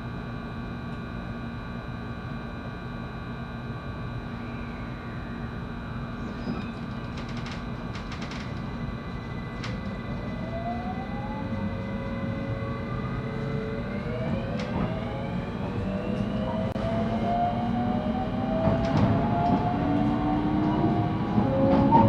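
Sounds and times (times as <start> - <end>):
electric train motor whine: 2.3 - 22.0
train wheels rumbling: 11.4 - 22.0.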